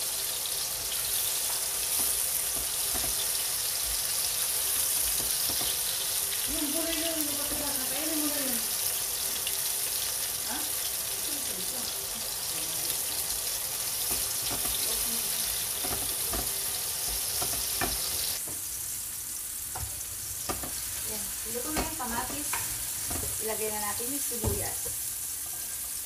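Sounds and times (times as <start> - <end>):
tomatoes sizzling in hot oil: 0.0 - 26.0
spatula stirring and scraping pan: 0.9 - 8.4, 13.1 - 18.7, 19.7 - 26.0.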